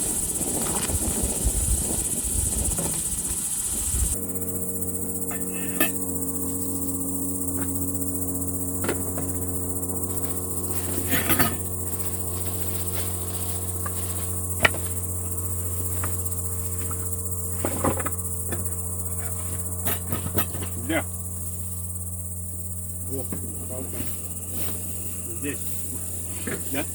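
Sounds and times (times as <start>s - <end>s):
insects chirring: 0.0s - 26.9s
low hum: 3.7s - 26.9s
sharp clicks and knocks: 14.6s - 15.0s.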